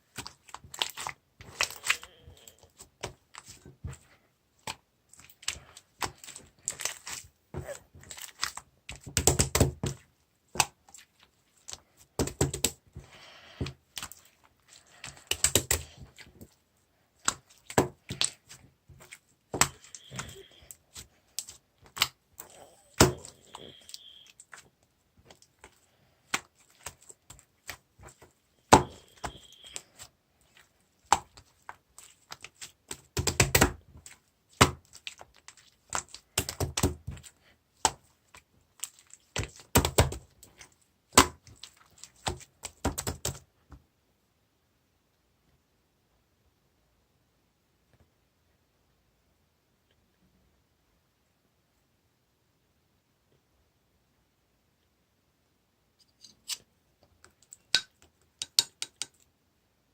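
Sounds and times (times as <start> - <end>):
slime squishing: 0.0 - 43.4.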